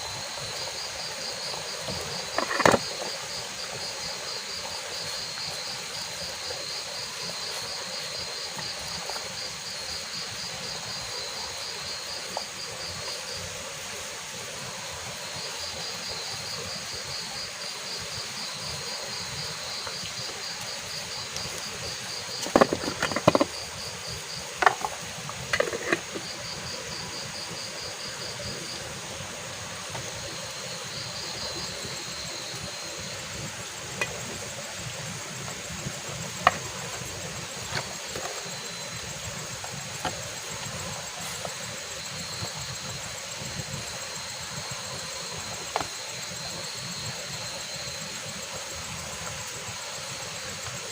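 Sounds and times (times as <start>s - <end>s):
insects chirring: 0.0s - 50.9s
sharp knocks and clatters: 22.4s - 23.6s.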